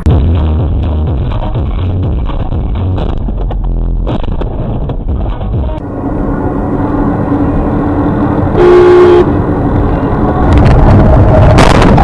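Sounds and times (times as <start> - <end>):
car engine and road noise: 0.0 - 12.0
car horn honking: 5.8 - 10.4.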